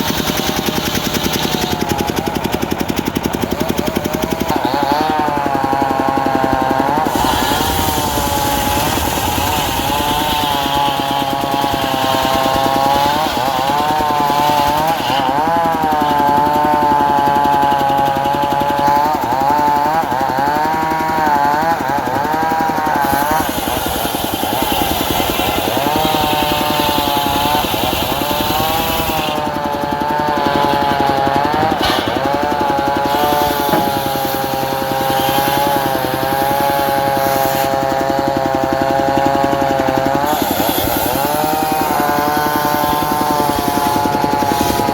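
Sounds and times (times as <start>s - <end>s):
circular saw cutting wood: 0.0s - 44.9s.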